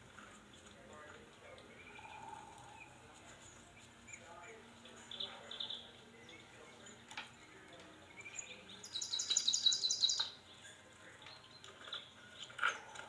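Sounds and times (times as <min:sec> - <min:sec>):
faint bird chirps: 0:01.5 - 0:13.0
songbird trilling: 0:08.1 - 0:10.4.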